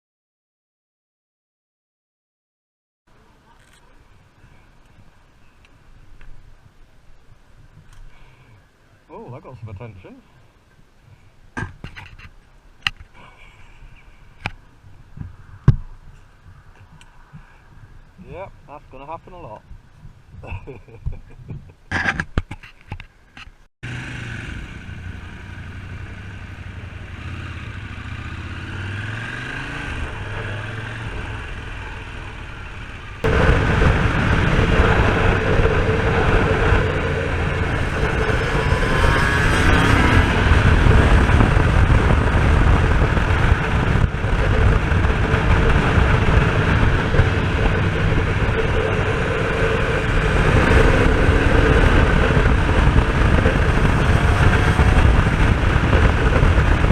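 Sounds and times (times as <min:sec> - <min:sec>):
wind noise on microphone: 0:11.0 - 0:18.8, 0:19.4 - 0:23.7, 0:25.7 - 0:56.9
two-stroke motorcycle engine: 0:23.8 - 0:56.9.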